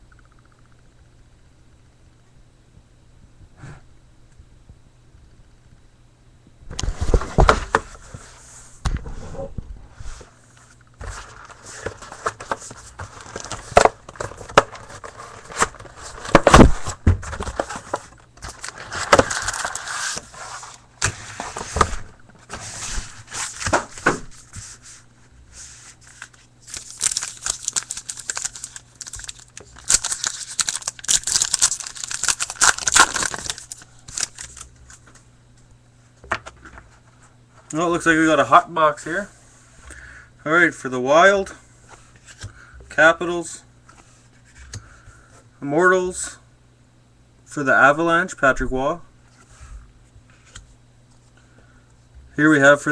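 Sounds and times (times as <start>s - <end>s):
faint low hum: 0.0s - 52.9s
wrappers crinkling and tearing: 11.2s - 20.8s, 26.0s - 35.1s.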